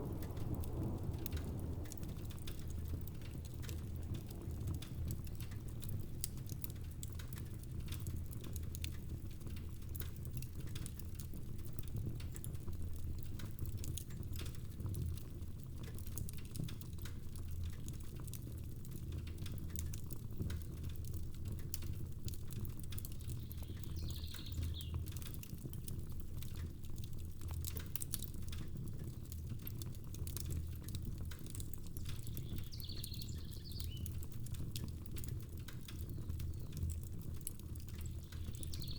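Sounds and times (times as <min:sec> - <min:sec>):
low rumble: 0:00.0 - 0:05.5
rain pattering: 0:00.0 - 0:38.9
wood fire crackling and popping: 0:00.0 - 0:38.9.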